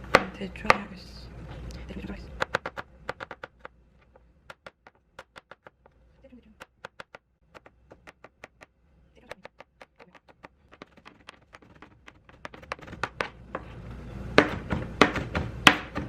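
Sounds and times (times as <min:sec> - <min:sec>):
knife chopping on cutting board: 0:02.4 - 0:03.7, 0:09.3 - 0:13.7, 0:14.4 - 0:16.0.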